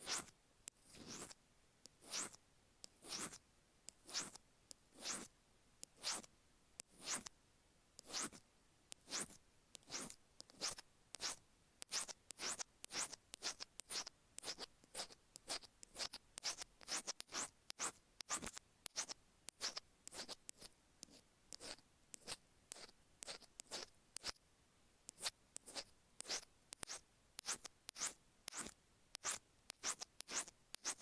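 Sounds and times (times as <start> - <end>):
metal pick scratching earphone grooves: 0.9 - 1.4, 2.0 - 2.4, 4.1 - 4.4, 5.0 - 5.3, 6.0 - 6.3, 8.0 - 8.4, 9.1 - 24.4, 25.1 - 31.0.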